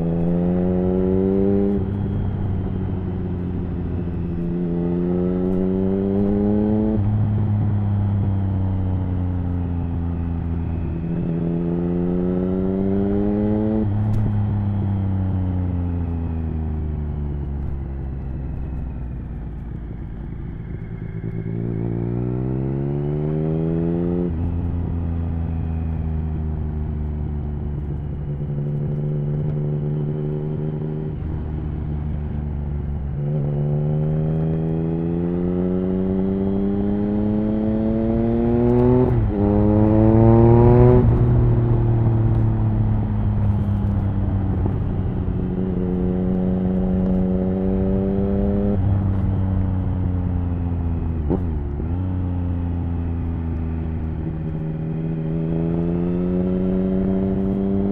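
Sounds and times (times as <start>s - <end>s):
motorcycle engine revving: 0.0s - 15.4s, 26.7s - 57.9s.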